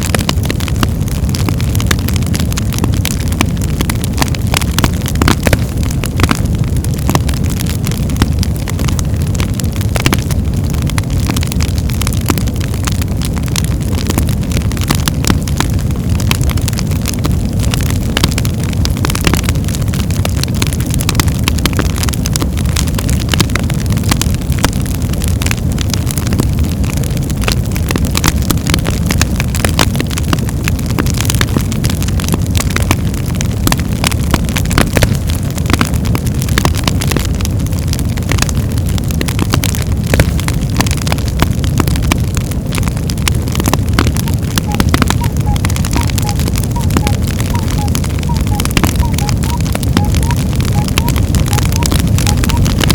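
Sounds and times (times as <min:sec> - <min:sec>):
fire crackling: 0:00.0 - 0:52.9
low rumble of flames: 0:00.0 - 0:52.9
sharp pops of burning logs: 0:00.0 - 0:52.9.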